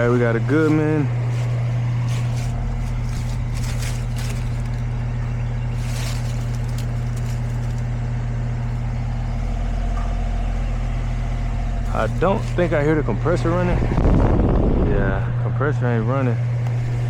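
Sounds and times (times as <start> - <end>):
condenser fan motor humming: 0.0 - 17.0
brief rustles: 1.4 - 5.0, 5.7 - 7.8.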